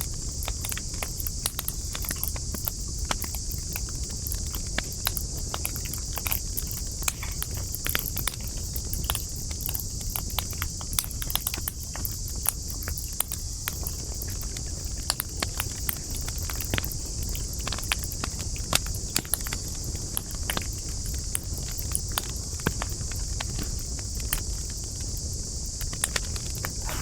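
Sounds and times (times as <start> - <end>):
campfire crackling: 0.2 - 19.0, 25.8 - 27.0
high hiss: 26.5 - 27.0.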